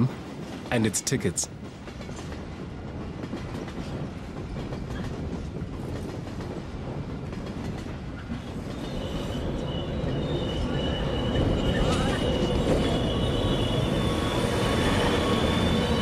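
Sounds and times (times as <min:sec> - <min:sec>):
train rumbling at speed: 0:00.0 - 0:16.0
high steady squeal: 0:08.8 - 0:16.0.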